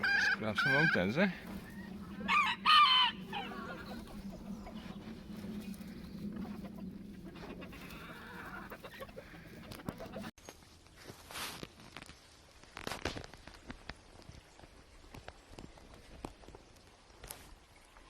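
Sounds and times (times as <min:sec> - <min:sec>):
chickens clucking: 0:00.0 - 0:10.3.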